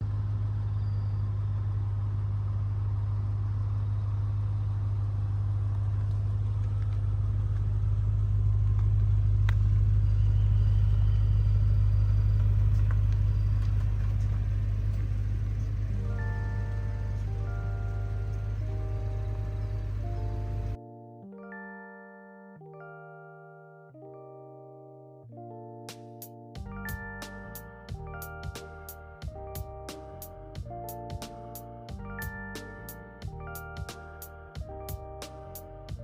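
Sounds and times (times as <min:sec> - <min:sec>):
car exhaust rumble: 0:00.0 - 0:20.8, 0:26.6 - 0:36.0
music: 0:16.0 - 0:36.0.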